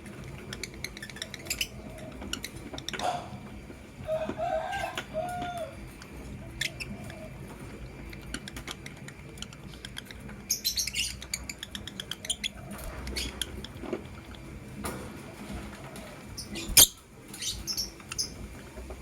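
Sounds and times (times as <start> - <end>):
lovebirds chirping: 7.9 - 13.8, 16.3 - 18.4.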